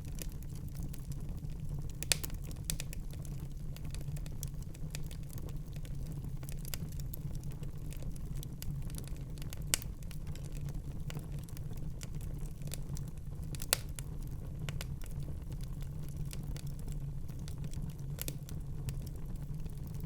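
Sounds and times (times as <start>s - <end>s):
wood fire crackling: 0.0s - 20.0s
fire pops: 1.7s - 5.6s, 8.4s - 11.2s, 13.5s - 20.0s.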